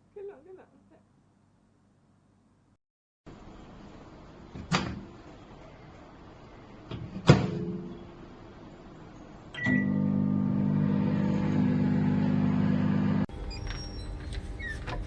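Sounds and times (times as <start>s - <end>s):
microwave electrical hum: 9.4s - 15.0s.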